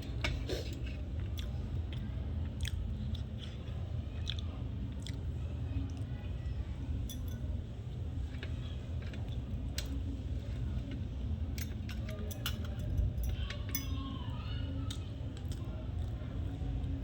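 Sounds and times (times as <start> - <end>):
steady low hum: 0.0 - 17.0
eating clicks and clinks: 11.6 - 14.0.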